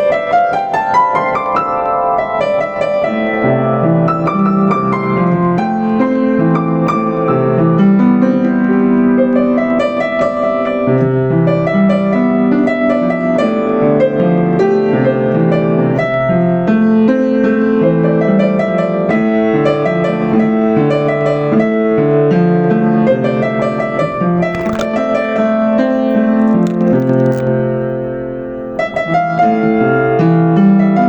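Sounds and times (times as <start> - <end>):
upright piano playing: 0.0 - 22.0.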